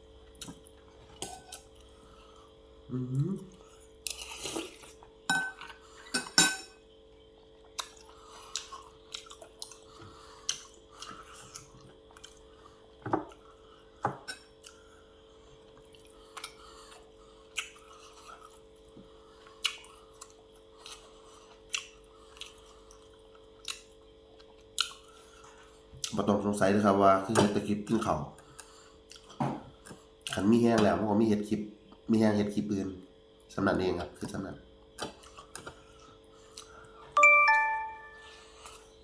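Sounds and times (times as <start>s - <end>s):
faint steady hum: 0.0s - 39.0s
dishes and cutlery clinking: 5.3s - 6.8s
chewing: 7.6s - 26.2s, 27.9s - 30.4s, 35.0s - 37.0s.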